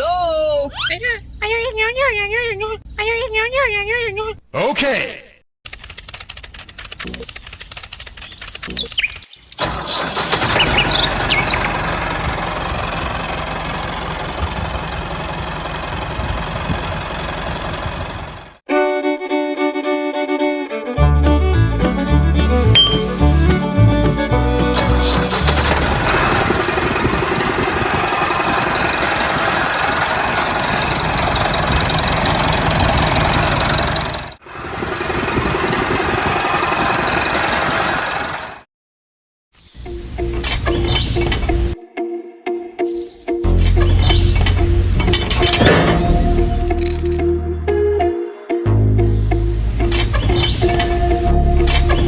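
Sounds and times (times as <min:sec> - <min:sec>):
bird chirps: 0:08.2 - 0:11.9, 0:22.8 - 0:23.1, 0:39.7 - 0:41.8, 0:43.7 - 0:45.4, 0:49.6 - 0:52.0
tractor engine knocking: 0:09.6 - 0:18.6, 0:24.8 - 0:38.6, 0:44.1 - 0:46.3.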